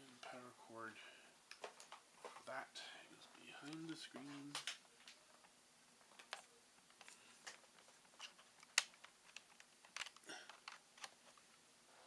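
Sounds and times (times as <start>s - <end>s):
cables and plugs clicking: 1.5s - 2.5s, 3.3s - 11.5s.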